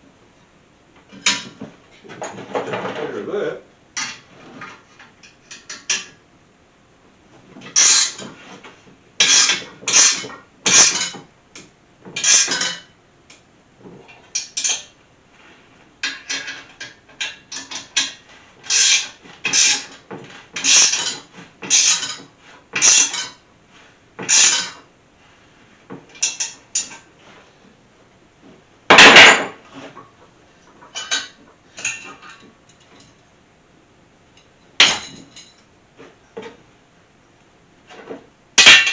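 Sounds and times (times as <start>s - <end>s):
loud metal clank: 28.9s - 29.6s, 38.6s - 38.9s.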